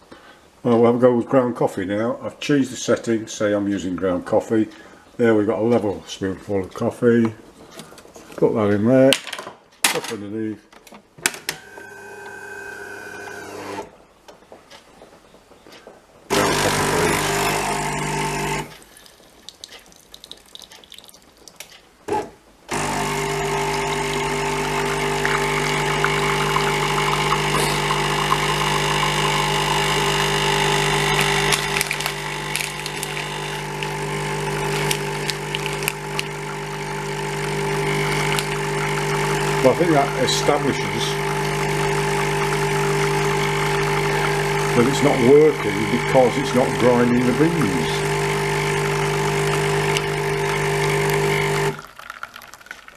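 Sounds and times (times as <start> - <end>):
coffee machine motor running: 11.6 - 13.9, 16.3 - 18.8, 22.1 - 52.5.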